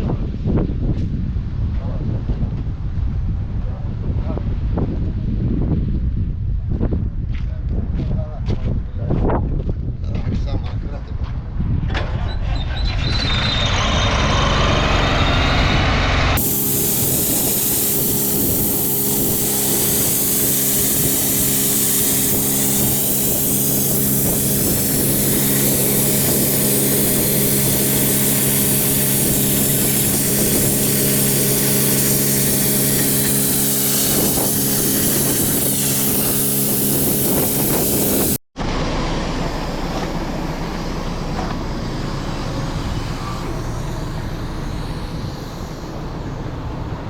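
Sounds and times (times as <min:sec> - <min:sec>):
machine humming: 0:14.4 - 0:47.0
loud hiss: 0:16.4 - 0:38.4, 0:39.4 - 0:47.0.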